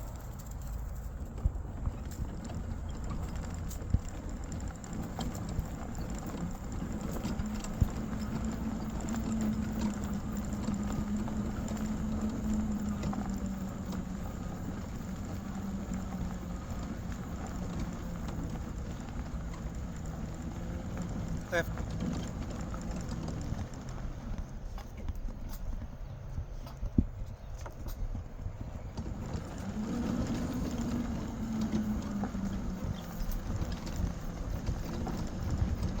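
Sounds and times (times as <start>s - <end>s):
passing vehicle hum: 28.9s - 36.0s.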